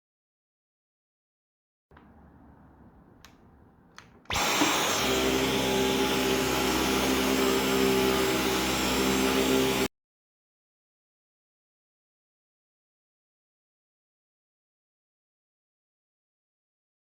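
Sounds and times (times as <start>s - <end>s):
cordless vacuum running: 4.3s - 9.9s.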